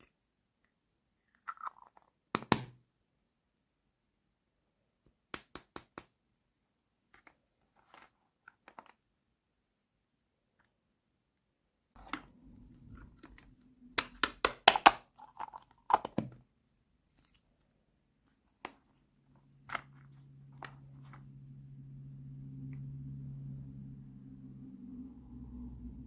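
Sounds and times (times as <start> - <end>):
low steady hum: 12.0 - 14.3, 16.8 - 26.0.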